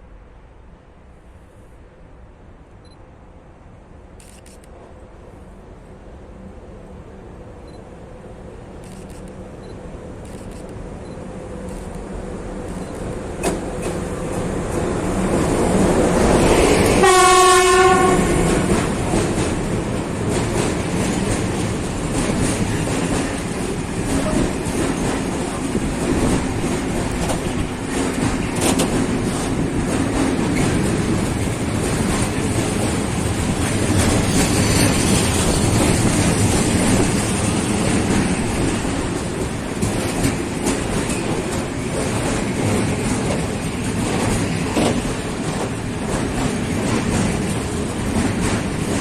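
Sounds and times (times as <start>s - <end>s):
train wheels clattering: 12.6s - 49.0s
train horn blast: 16.8s - 18.7s.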